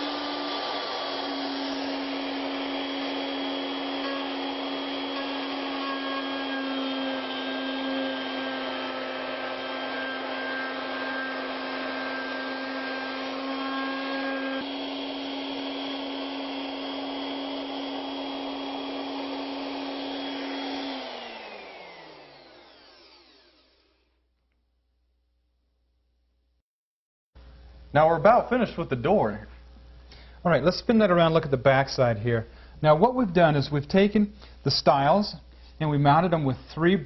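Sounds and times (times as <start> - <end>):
wood router running: 0.0 - 24.1.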